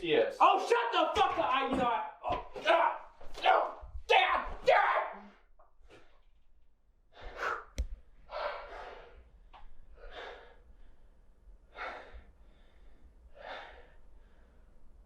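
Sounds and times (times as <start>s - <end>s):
person breathing heavily: 7.1s - 14.8s.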